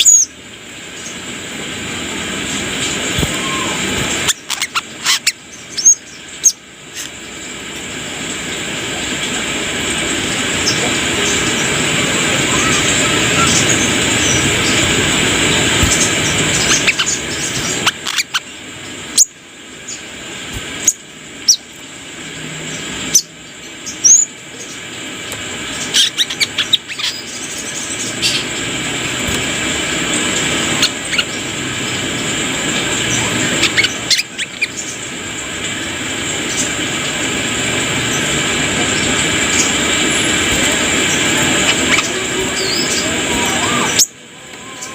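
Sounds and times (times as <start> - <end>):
loud rushing noise: 1.4 - 4.3, 8.6 - 17.8
bird chirping: 3.1 - 7.2, 12.3 - 18.5, 25.7 - 28.6, 33.1 - 35.1.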